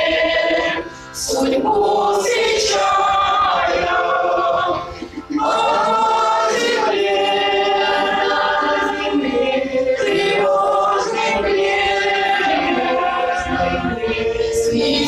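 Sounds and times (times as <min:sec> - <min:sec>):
choir singing held notes: 0:00.0 - 0:15.0.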